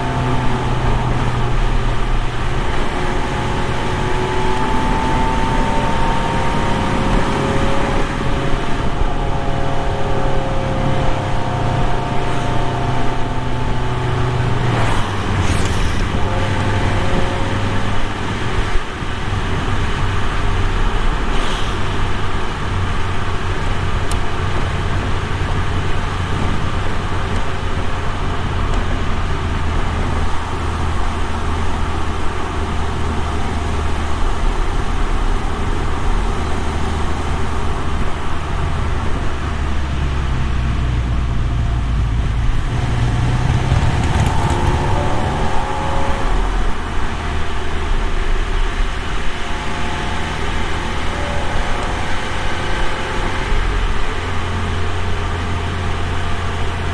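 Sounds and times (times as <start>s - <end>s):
car exhaust droning: 0.0s - 56.9s
faint higher tones shifting pitch: 4.2s - 18.1s, 44.1s - 48.0s, 49.4s - 54.8s.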